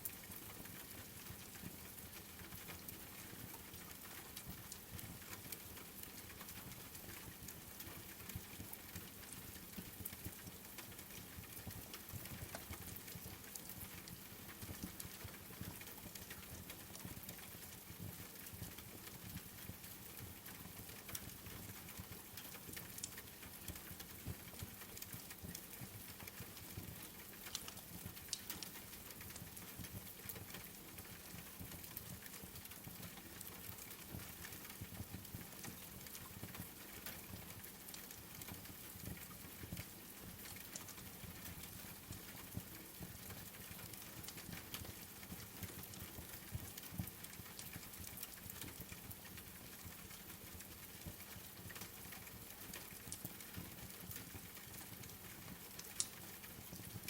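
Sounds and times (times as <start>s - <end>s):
rain falling: 22.4s - 57.0s
wood fire crackling: 27.0s - 29.4s, 50.1s - 56.7s.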